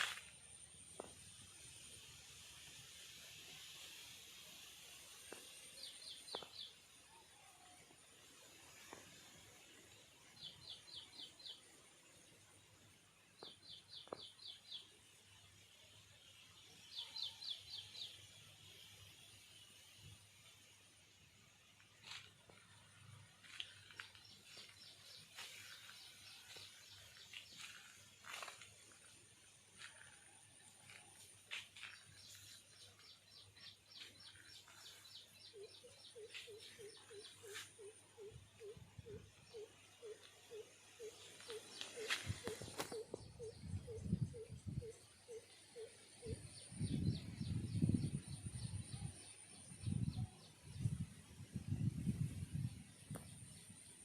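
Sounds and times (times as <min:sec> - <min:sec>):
faint outdoor background: 0:00.0 - 0:54.0.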